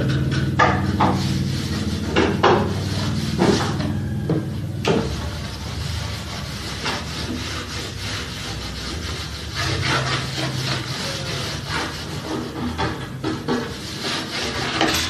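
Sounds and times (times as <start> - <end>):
scraping on a table top: 0.0 - 15.0.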